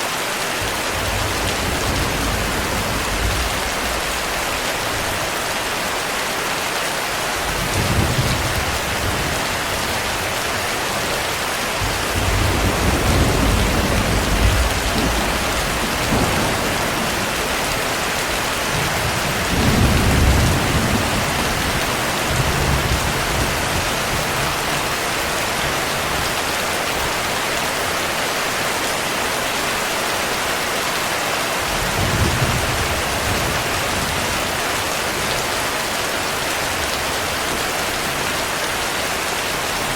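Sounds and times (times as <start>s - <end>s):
heavy rain: 0.0s - 39.9s
rolling thunder: 0.6s - 5.3s, 11.8s - 24.5s.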